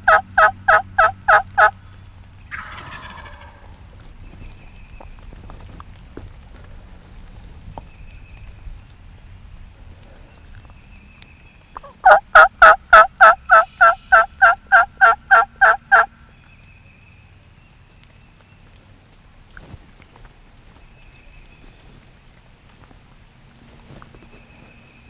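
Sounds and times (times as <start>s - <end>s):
turkey yelps: 0.0s - 1.8s, 2.5s - 3.8s, 11.8s - 16.1s
faint rain: 0.0s - 25.0s.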